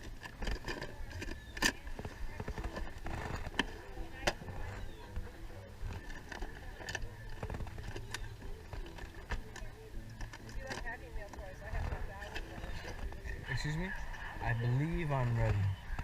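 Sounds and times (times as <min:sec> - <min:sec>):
hard objects clicking: 0:00.0 - 0:13.3.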